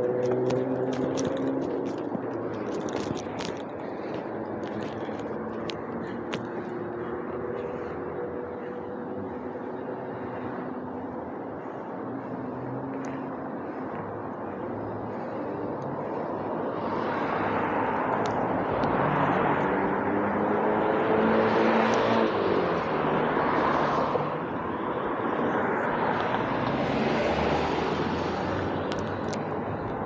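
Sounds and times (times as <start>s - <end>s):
vehicles passing: 0.0s - 30.0s.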